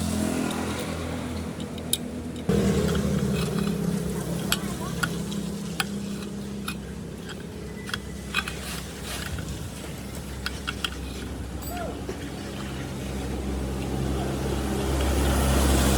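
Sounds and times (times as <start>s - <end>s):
machine hum: 0.0s - 15.9s.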